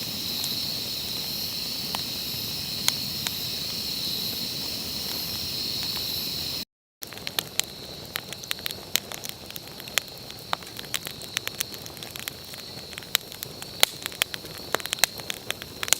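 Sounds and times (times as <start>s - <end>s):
steady high hiss: 0.0s - 6.6s
campfire crackling and popping: 0.0s - 15.9s.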